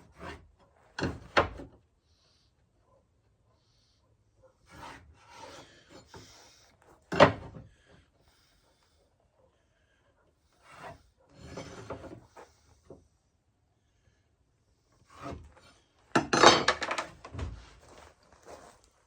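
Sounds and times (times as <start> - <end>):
wooden boards scraping: 4.7 - 6.4, 10.6 - 12.3.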